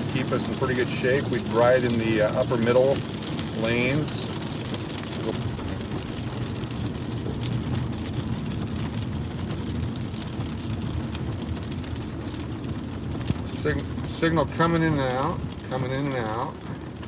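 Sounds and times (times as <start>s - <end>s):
heavy rain on a car: 0.0s - 17.0s
road and engine rumble: 0.0s - 17.0s.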